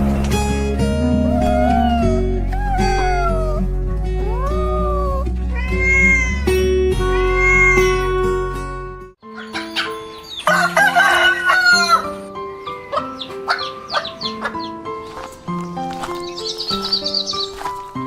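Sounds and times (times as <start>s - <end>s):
background music: 0.0s - 18.0s
cat meowing: 1.3s - 3.6s, 4.2s - 8.2s
harsh animal call: 4.2s - 8.0s.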